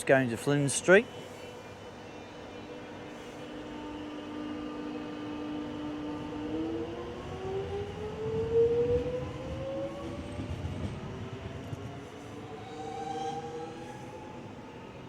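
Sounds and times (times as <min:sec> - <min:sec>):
electric train motors whining: 0:01.1 - 0:15.0
wheels rumbling on rails: 0:03.6 - 0:15.0.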